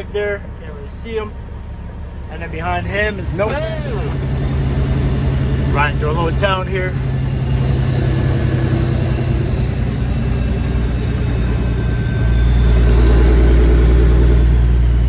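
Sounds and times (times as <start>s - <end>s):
truck diesel engine droning: 0.0s - 15.0s.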